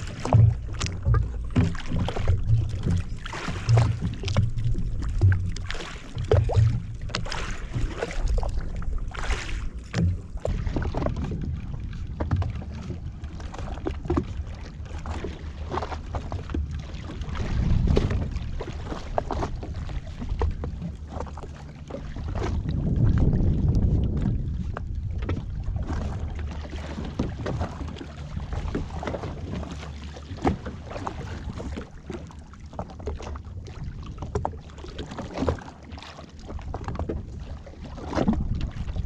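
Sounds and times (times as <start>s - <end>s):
jet ski engine humming: 0.0s - 39.0s
water slapping against hull: 0.0s - 39.0s
wind buffeting microphone: 17.2s - 21.0s, 22.1s - 29.7s.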